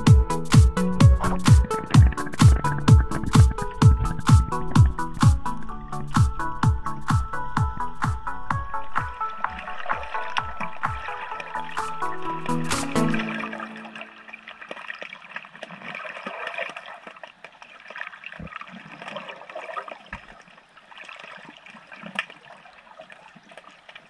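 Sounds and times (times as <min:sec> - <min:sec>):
dull low thumps: 0:00.0 - 0:13.2
underwater crackling gurgling water: 0:00.8 - 0:06.9, 0:08.6 - 0:24.0.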